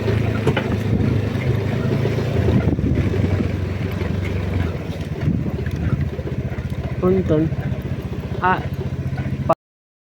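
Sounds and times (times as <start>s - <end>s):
motorcycle engine running: 0.0s - 9.6s
wind on microphone: 0.5s - 6.2s.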